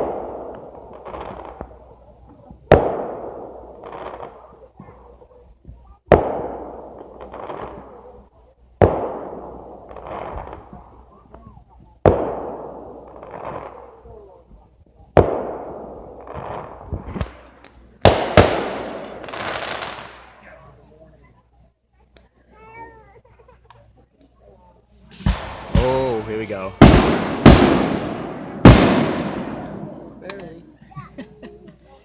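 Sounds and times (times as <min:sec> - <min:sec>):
rolling echo: 0:00.0 - 0:02.0, 0:08.8 - 0:11.4, 0:12.1 - 0:14.3, 0:15.2 - 0:20.5, 0:25.1 - 0:30.7
fireworks booming: 0:00.0 - 0:20.6, 0:25.1 - 0:30.8
fireworks pops and crackles: 0:00.0 - 0:21.2, 0:25.1 - 0:31.1.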